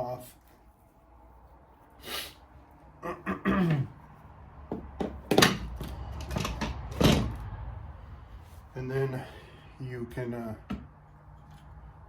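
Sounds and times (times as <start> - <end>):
sharp metal clunks and knocks: 4.7 - 7.4.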